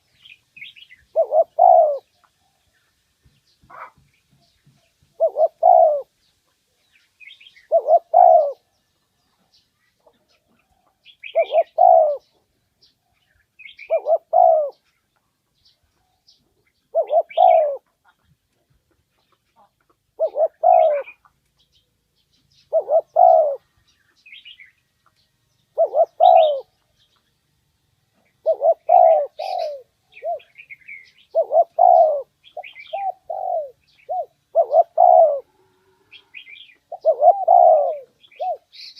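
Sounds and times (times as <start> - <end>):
small birds chirping: 0.0 - 38.9
dove cooing: 0.6 - 2.6, 5.1 - 6.2, 7.3 - 8.8, 10.1 - 12.5, 13.6 - 14.9, 16.8 - 18.2, 19.6 - 21.2, 22.6 - 23.8, 25.7 - 26.8, 28.3 - 38.9.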